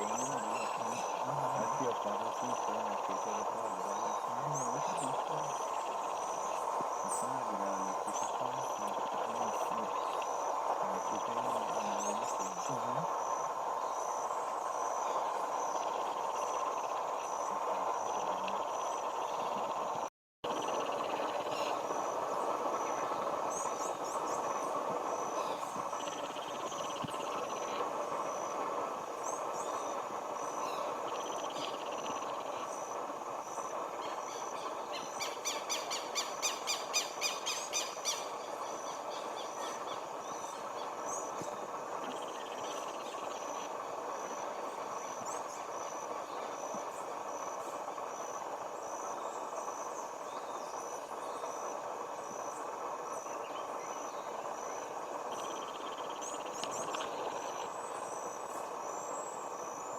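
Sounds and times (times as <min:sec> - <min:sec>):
faint bird chirps: 0:00.0 - 0:13.2, 0:29.2 - 0:33.0, 0:33.6 - 0:47.2
steady hiss: 0:00.0 - 0:59.9.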